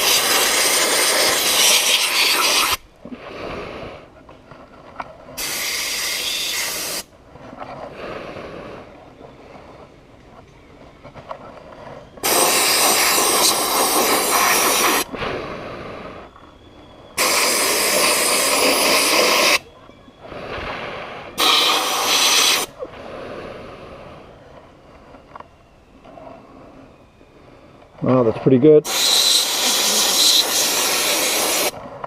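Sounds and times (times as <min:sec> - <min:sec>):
sandblast gun hissing: 0:00.0 - 0:03.9, 0:05.4 - 0:07.1, 0:12.2 - 0:16.1, 0:17.2 - 0:19.6, 0:20.4 - 0:22.8, 0:28.8 - 0:31.8
faint air hiss: 0:05.3 - 0:07.2.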